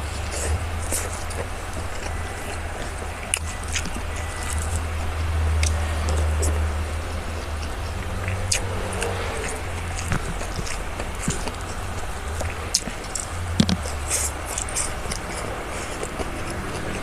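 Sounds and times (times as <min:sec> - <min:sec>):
chewing with crunches: 0:00.0 - 0:17.0
steady low hum: 0:00.0 - 0:17.0.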